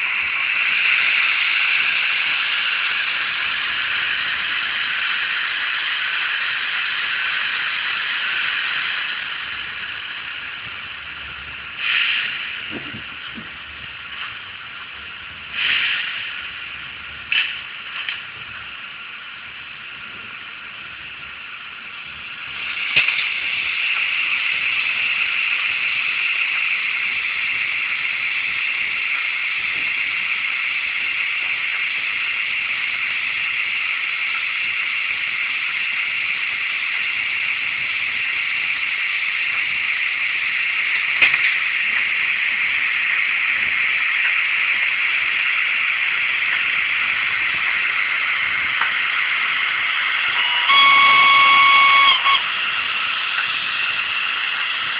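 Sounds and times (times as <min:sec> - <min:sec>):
short hissing bursts: 0:11.8 - 0:12.7, 0:15.5 - 0:16.6.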